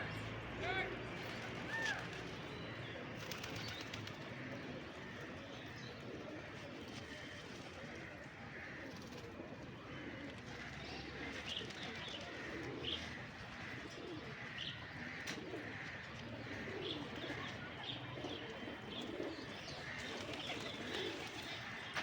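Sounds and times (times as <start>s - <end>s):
pigeons cooing: 1.2s - 22.0s.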